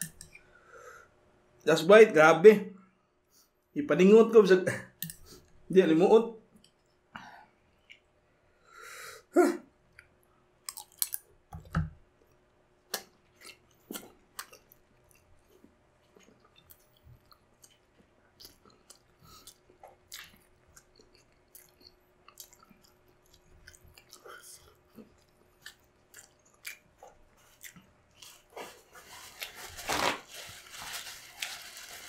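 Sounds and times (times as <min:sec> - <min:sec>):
close chewing with mouth clicks: 0:09.9 - 0:11.3, 0:12.9 - 0:28.8.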